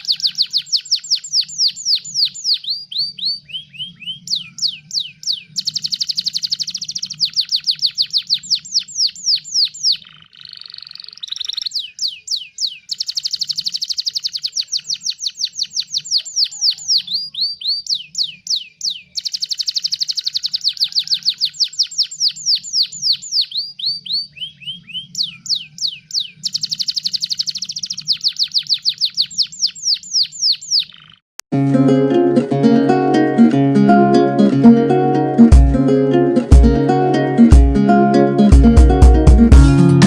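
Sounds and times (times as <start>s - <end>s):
canary singing trills: 0.0s - 31.2s
raspy canary song: 0.0s - 31.2s.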